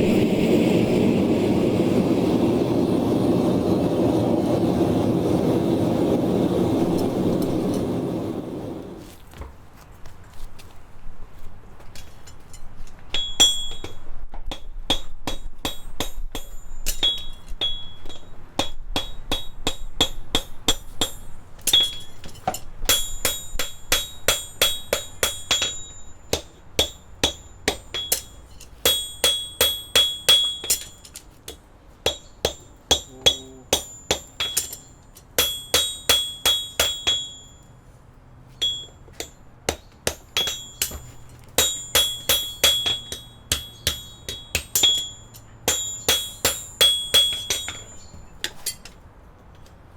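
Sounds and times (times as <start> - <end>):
hammer striking horseshoe: 11.9 - 37.6, 38.6 - 49.0.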